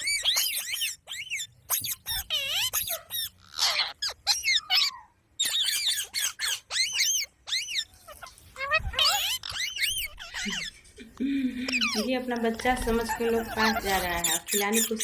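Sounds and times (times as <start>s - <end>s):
parrots squawking: 0.0s - 11.0s, 11.6s - 15.0s.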